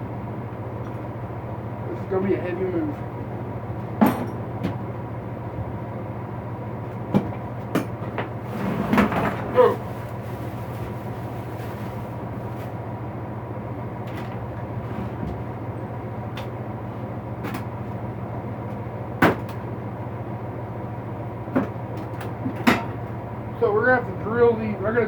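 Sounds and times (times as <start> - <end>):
steady low hum: 0.0 - 25.0
tools knocking and clanking: 4.0 - 4.8.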